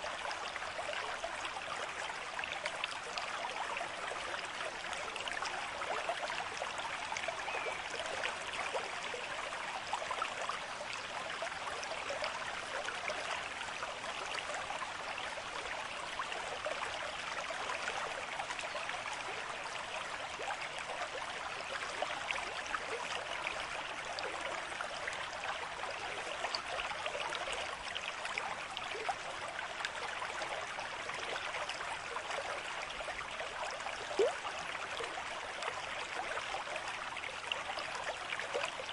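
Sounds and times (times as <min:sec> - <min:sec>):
stream water babbling: 0:00.0 - 0:38.9.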